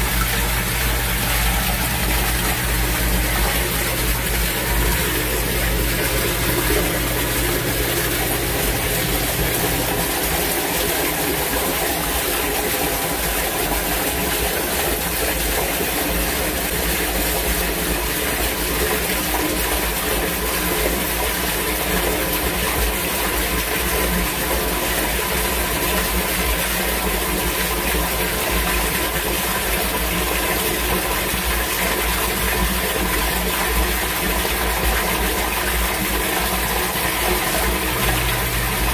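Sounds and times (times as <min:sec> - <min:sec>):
faint steady hum: 0:00.0 - 0:19.0, 0:33.6 - 0:38.9
water pouring through drainage: 0:00.0 - 0:38.9
torrential rain: 0:36.7 - 0:38.9.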